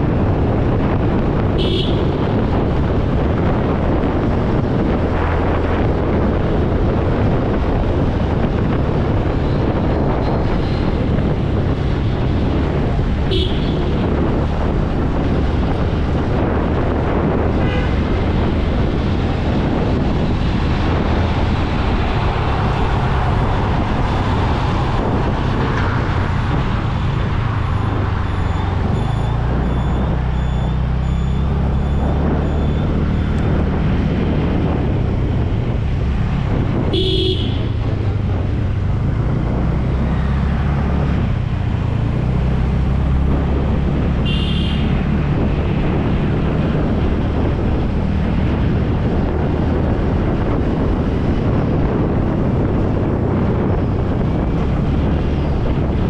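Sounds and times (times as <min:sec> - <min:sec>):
road and wind noise: 0:00.0 - 0:56.0
vehicle horn toots: 0:01.6 - 0:02.2, 0:13.3 - 0:13.9, 0:17.6 - 0:18.0, 0:36.9 - 0:37.8, 0:44.2 - 0:44.9.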